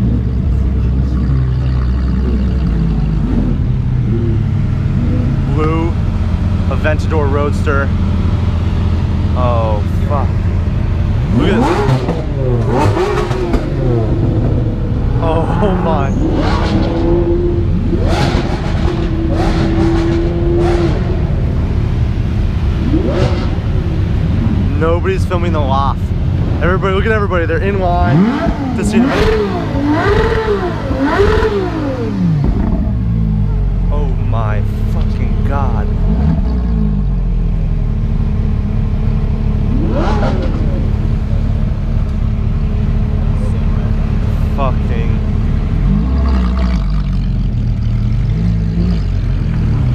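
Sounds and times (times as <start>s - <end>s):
heavy low rumble: 0.0s - 49.9s
supercar engines revving: 0.0s - 49.9s.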